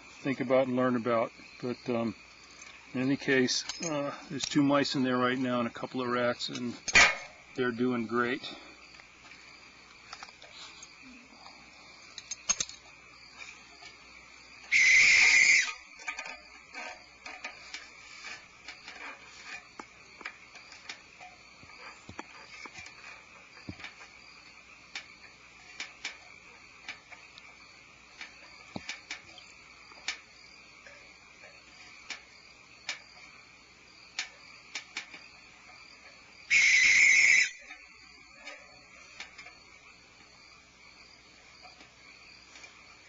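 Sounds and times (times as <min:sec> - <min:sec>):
crickets chirring: 0:00.0 - 0:43.0
faint clicks and scrapes: 0:08.6 - 0:14.0, 0:15.9 - 0:33.4, 0:41.6 - 0:42.8
barn owl screech: 0:14.6 - 0:16.0, 0:36.5 - 0:37.8.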